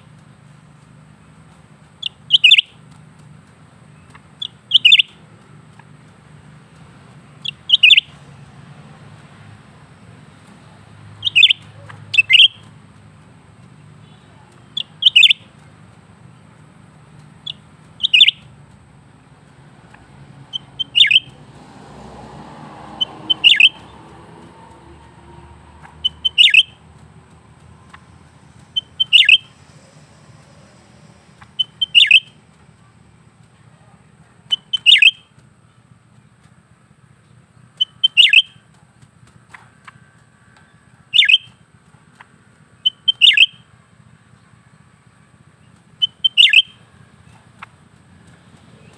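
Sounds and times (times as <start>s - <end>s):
bird giving sharp calls: 1.9s - 2.9s, 3.9s - 9.6s, 10.4s - 15.9s, 17.2s - 18.6s, 19.4s - 33.0s, 34.4s - 35.4s, 37.7s - 38.6s, 41.0s - 43.8s, 45.7s - 48.9s.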